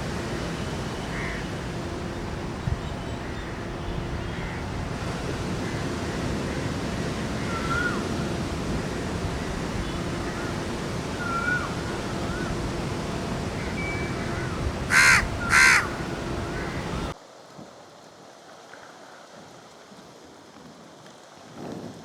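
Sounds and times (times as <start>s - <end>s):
birds whistling calls: 0.0s - 17.1s
heavy rain: 0.0s - 17.2s
crow cawing: 1.0s - 2.2s, 3.2s - 17.1s.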